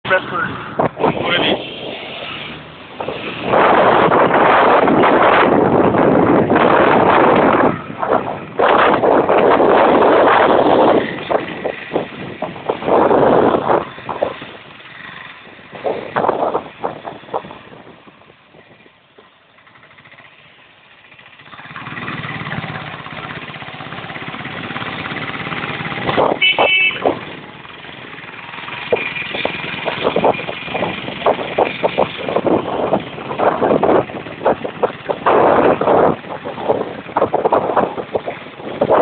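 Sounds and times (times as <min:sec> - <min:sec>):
road traffic with motorcycles: 0:00.0 - 0:39.0
horn beep: 0:26.4 - 0:27.1.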